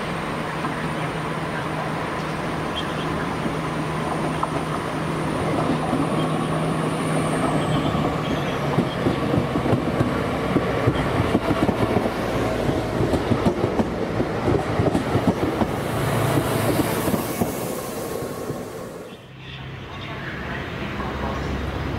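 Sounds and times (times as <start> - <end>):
train rumble: 0.0 - 21.9
train wheels clicking over rails: 3.4 - 18.8.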